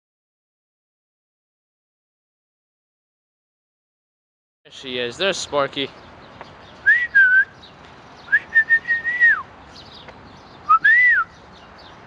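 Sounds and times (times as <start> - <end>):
person whistling: 6.8 - 7.6, 8.3 - 9.4, 10.7 - 11.3.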